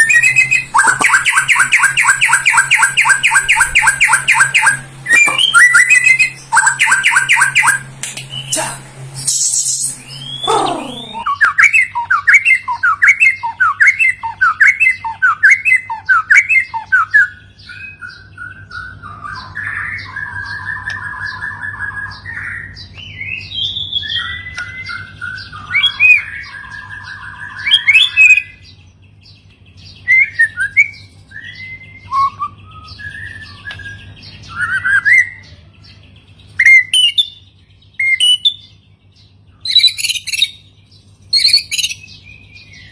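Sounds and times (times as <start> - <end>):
bird song with swooping whistles: 0.0 - 8.6, 9.2 - 35.5, 36.4 - 38.8, 39.6 - 40.7, 41.3 - 42.9
buzzy rattling bird phrases: 0.7 - 11.3.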